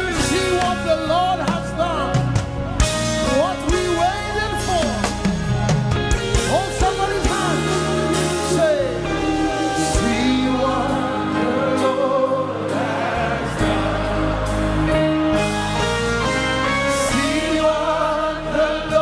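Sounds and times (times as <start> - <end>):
instrumental backing with bass: 0.0 - 19.0
voices singing together: 6.4 - 19.0.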